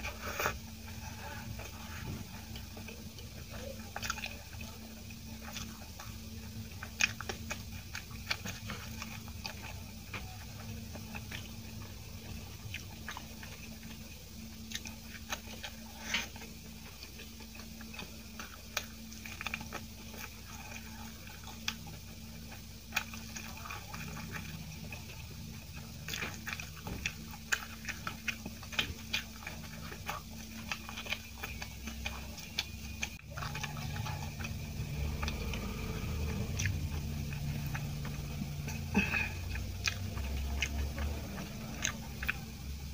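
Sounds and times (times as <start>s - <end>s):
chewing soft food: 0.0s - 42.9s
low steady hum: 0.0s - 42.9s.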